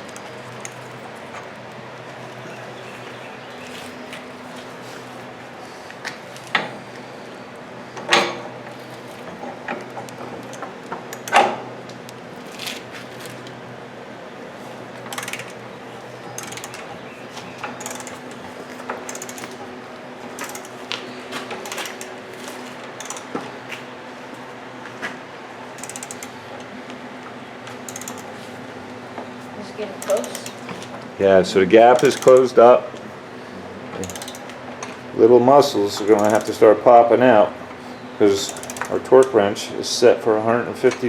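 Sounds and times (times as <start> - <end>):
hand ratchet clicking: 0.0 - 0.9, 10.4 - 11.5, 15.1 - 15.6, 16.4 - 16.9, 17.6 - 19.7, 20.3 - 22.2, 23.0 - 23.4, 25.8 - 26.7, 27.7 - 28.4, 30.0 - 30.9, 31.8 - 32.7, 34.0 - 34.9, 36.0 - 36.7, 38.4 - 39.4.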